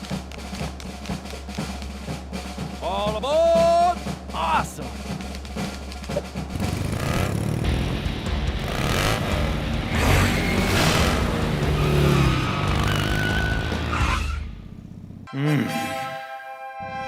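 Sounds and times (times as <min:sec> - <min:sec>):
background music: 0:00.0 - 0:17.0
tyres skidding: 0:05.1 - 0:15.3.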